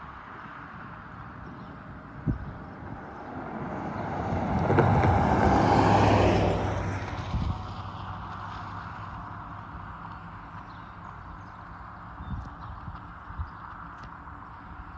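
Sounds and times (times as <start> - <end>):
wind noise: 1.4 - 8.0
vehicle passing by: 1.8 - 8.6.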